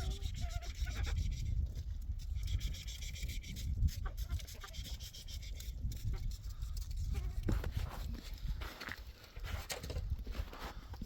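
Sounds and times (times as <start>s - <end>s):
wind gusting against microphone: 0.0s - 11.0s
faint rubbing noise: 6.3s - 11.0s.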